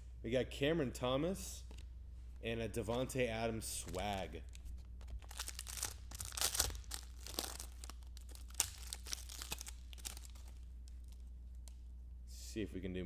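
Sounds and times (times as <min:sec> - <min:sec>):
wrapper tearing and crinkling: 0:03.8 - 0:11.7.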